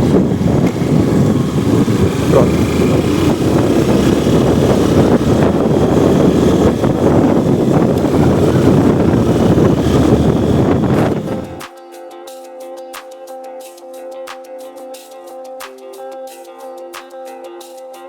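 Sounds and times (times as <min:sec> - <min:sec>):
motorcycle engine running: 0:00.0 - 0:11.6
wind rushing over microphone: 0:00.0 - 0:11.6.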